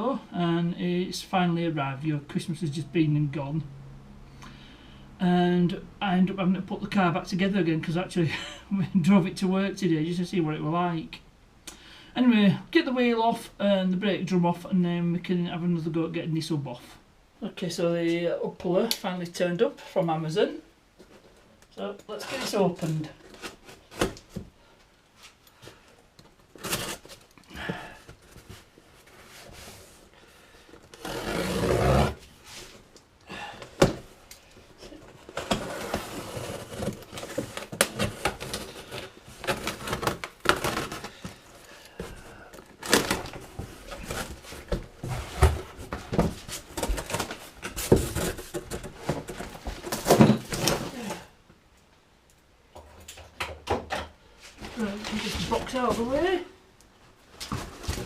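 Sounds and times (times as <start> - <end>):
tape tearing: 26.3 - 27.5, 30.9 - 32.3, 35.2 - 41.8, 42.6 - 44.8
cardboard flaps scraping and rustling: 26.4 - 30.1, 30.9 - 32.9, 33.7 - 51.3, 57.3 - 58.0.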